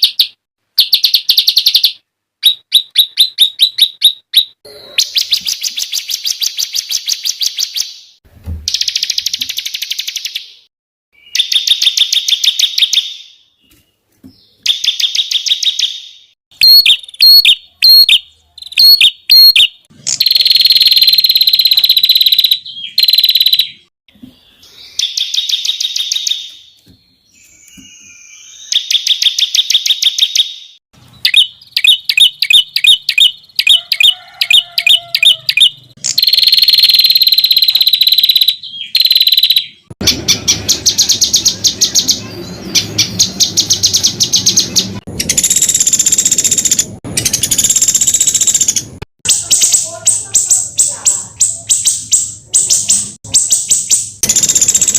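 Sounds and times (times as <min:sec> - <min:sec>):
songbird sharp repeated notes: 0:14.7 - 0:23.9, 0:28.4 - 0:33.8, 0:34.8 - 0:42.1.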